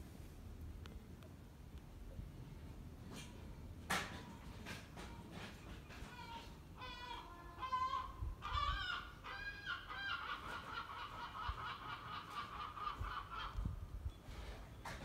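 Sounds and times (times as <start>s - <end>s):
bird calling: 5.9s - 13.8s.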